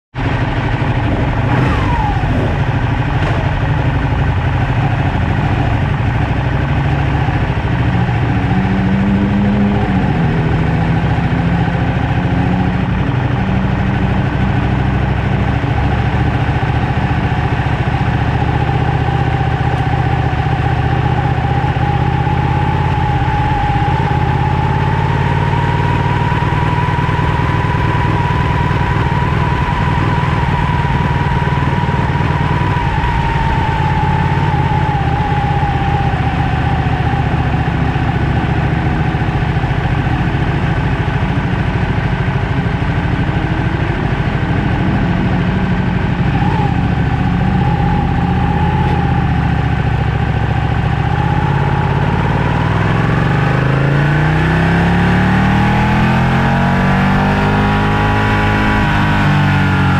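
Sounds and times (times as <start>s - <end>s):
motorcycle engine at low revs: 0.1s - 59.9s
faint rising whine: 26.3s - 40.4s.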